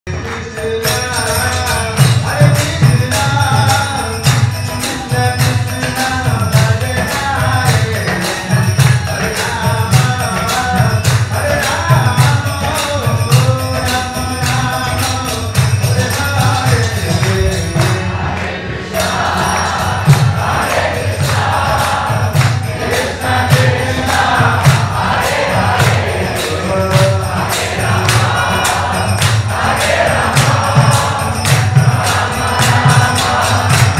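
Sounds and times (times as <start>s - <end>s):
jingling percussion: 0.1s - 33.9s
steady drum beat: 0.1s - 33.9s
group singing chant: 15.9s - 33.9s.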